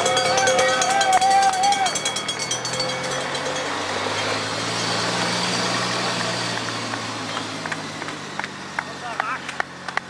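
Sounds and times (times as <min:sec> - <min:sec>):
car engine running: 0:00.0 - 0:10.0
road noise: 0:00.0 - 0:10.0.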